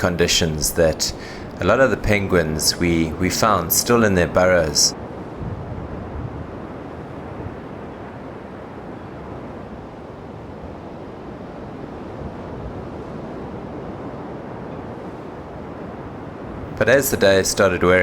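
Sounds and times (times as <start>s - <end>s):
surf: 0.0s - 5.4s
wind buffeting microphone: 0.0s - 8.2s.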